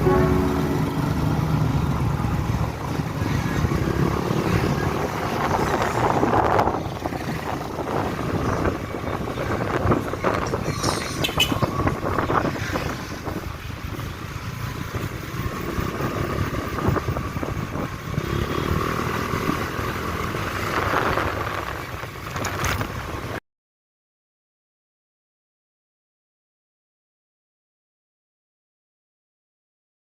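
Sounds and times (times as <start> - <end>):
wind buffeting microphone: 3.0 - 18.2.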